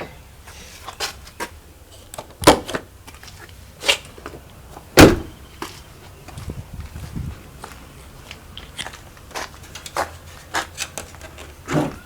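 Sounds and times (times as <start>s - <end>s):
latches and panels clunking: 4.9s - 5.4s.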